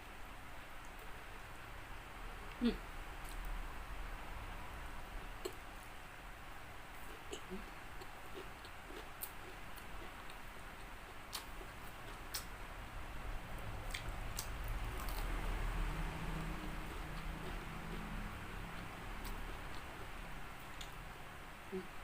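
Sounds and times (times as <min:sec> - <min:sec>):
chewing crispy fried chicken: 0:07.0 - 0:12.6, 0:13.6 - 0:22.0.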